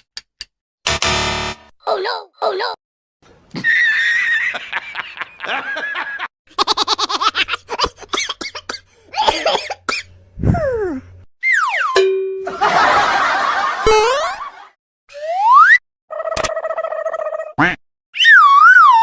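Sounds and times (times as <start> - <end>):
cartoon voice laughing: 13.8 - 14.5.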